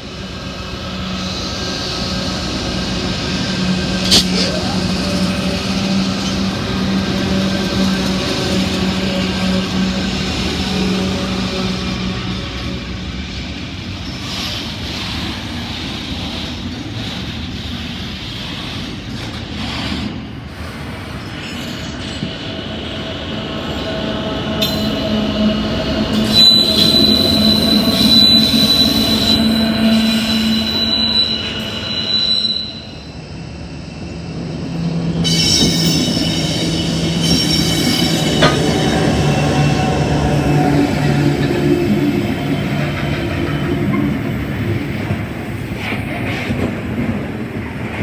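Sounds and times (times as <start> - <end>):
locomotive engines droning: 0.0 - 14.2, 21.3 - 47.9
freight train rolling on track: 0.0 - 48.0
shrill wheel squeal: 23.7 - 34.1, 35.1 - 44.2.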